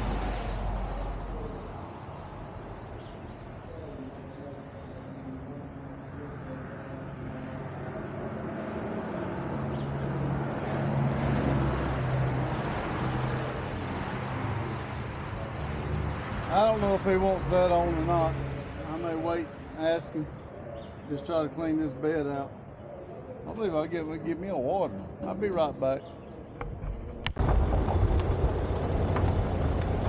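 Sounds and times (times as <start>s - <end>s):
vehicle engine running: 27.4s - 30.0s.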